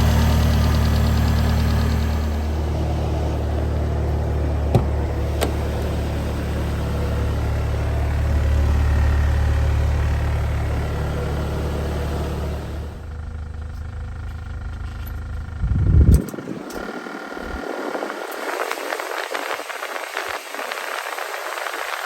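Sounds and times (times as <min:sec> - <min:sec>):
truck engine idling: 0:00.0 - 0:19.2
sharp clicks: 0:16.0 - 0:17.6.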